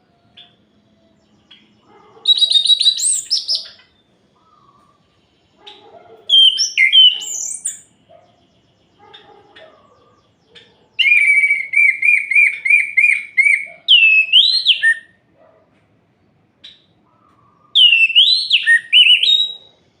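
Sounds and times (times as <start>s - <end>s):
bird quick repeated chirps: 1.5s - 4.1s, 5.6s - 7.9s, 10.6s - 15.0s.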